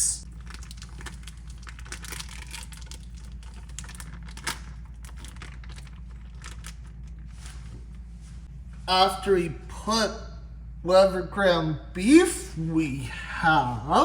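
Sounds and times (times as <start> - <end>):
packaging crinkling and tearing: 0.3 - 7.8.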